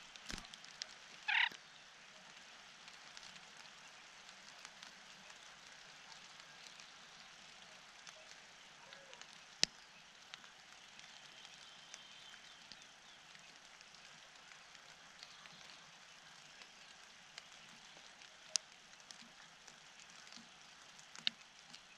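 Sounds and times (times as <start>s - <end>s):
faint steady hiss: 0.0s - 21.9s
bird harsh call: 1.3s - 1.6s.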